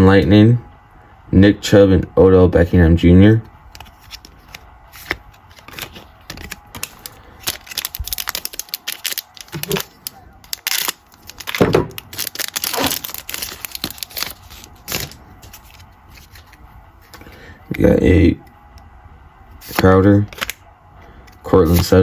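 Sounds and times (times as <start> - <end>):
plastic wrapper tearing and crinkling: 3.7 - 16.6, 19.6 - 20.6
cards being handled: 3.7 - 17.4, 19.6 - 20.6, 21.3 - 22.0.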